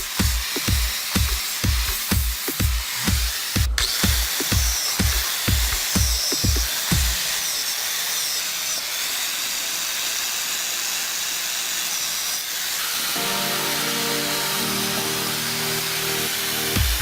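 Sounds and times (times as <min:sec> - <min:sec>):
music with sustained chords: 0:13.2 - 0:17.0.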